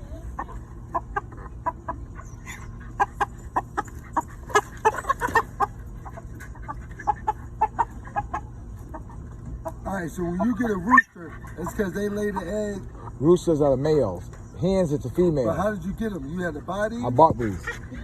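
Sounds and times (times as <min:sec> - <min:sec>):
chicken clucking: 0:00.0 - 0:13.2.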